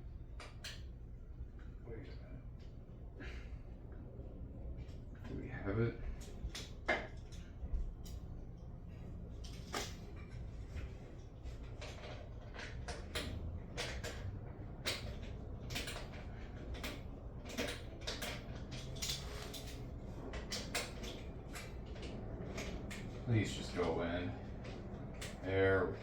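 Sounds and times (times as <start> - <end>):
low steady hum: 0.0 - 26.0
tools clicking and scraping on metal: 0.4 - 1.0, 6.1 - 25.7.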